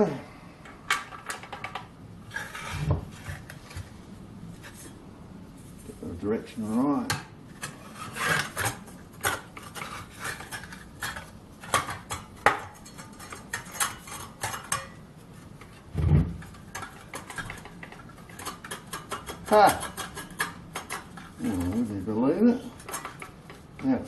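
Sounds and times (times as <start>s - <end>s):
heavy thump: 15.9s - 16.4s.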